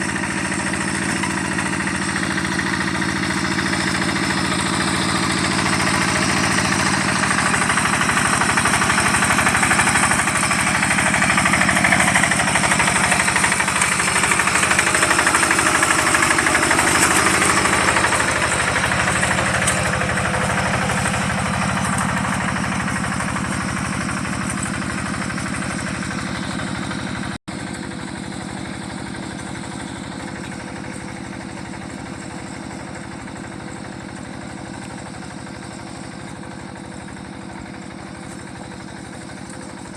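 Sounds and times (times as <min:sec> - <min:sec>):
tractor engine knocking: 0:00.0 - 0:39.9.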